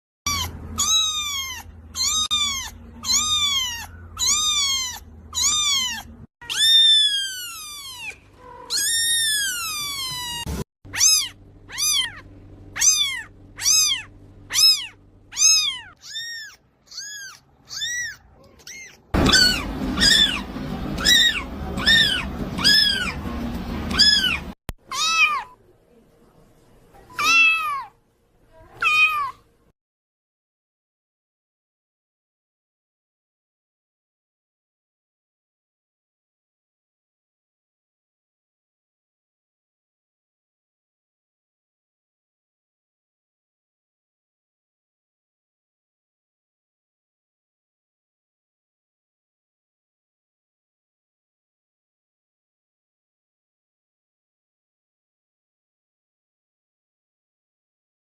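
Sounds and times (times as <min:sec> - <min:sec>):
cat meowing: 0:00.3 - 0:23.2, 0:23.9 - 0:25.6, 0:27.0 - 0:28.0, 0:28.6 - 0:29.4.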